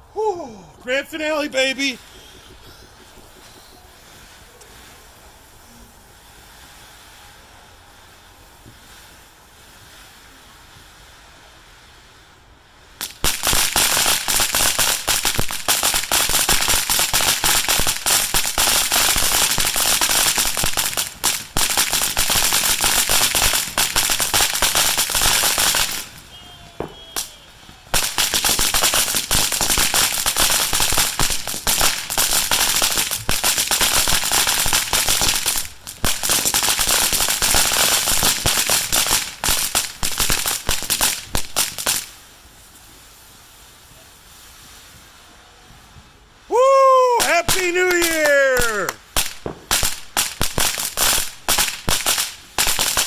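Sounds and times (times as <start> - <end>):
firecrackers crackling: 0.0 - 53.0.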